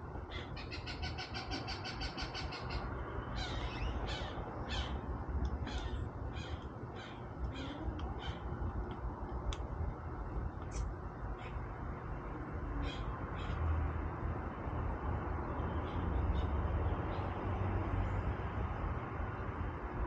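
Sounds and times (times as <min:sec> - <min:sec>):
crows cawing: 0:03.4 - 0:05.0, 0:05.6 - 0:08.4.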